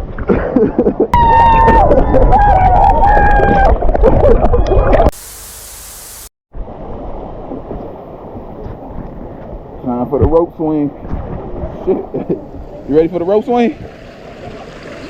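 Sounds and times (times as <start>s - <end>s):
high held yell: 1.2s - 3.8s
muffled rushing water: 3.3s - 15.0s
brief hiss: 5.2s - 6.3s.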